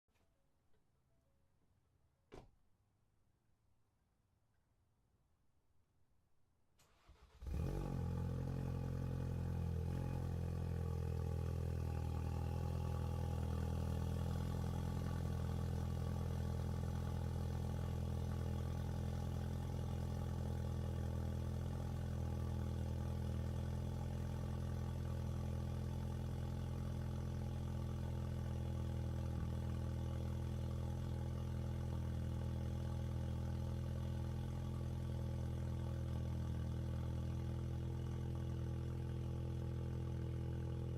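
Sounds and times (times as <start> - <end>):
car engine starting and idling: 6.8 - 40.9.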